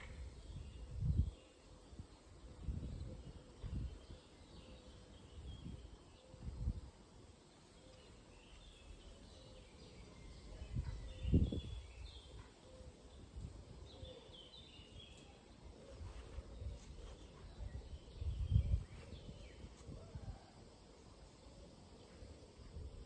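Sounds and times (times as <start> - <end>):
small birds chirping: 7.6 - 20.4
low rumbles on microphone: 15.9 - 20.3.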